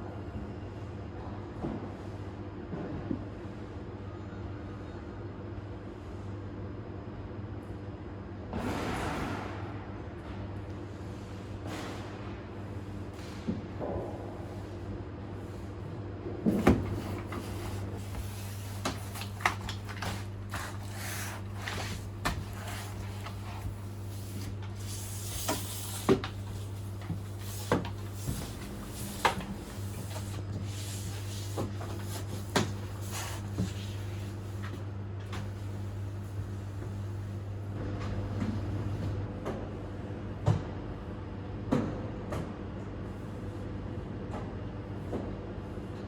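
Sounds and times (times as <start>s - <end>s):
steady low hum: 8.4s - 41.2s
knocks and clicks of cleaning: 16.4s - 35.6s.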